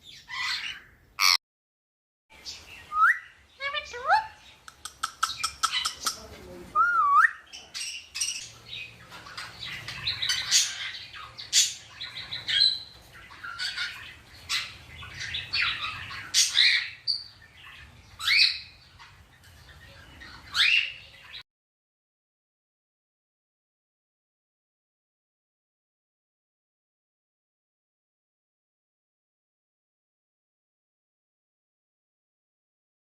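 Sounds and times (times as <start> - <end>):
parakeet chirps and squawks: 0.0 - 1.4, 2.4 - 6.3, 7.4 - 21.4.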